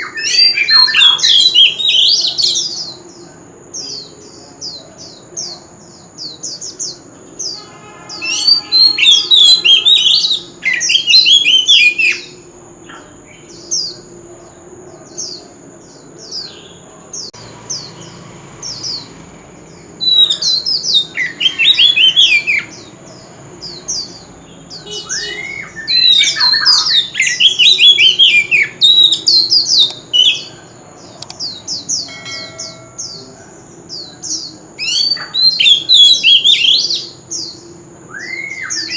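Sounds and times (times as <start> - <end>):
bird whistled notes and warbling: 0.0 - 2.9, 7.4 - 12.4, 19.8 - 30.6, 34.8 - 37.1, 38.1 - 38.9.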